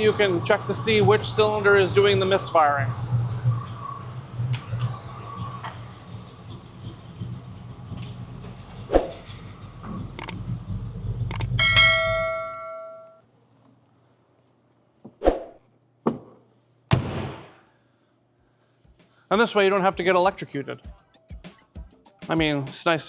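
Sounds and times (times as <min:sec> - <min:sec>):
car engine idling rough: 0:00.0 - 0:12.5.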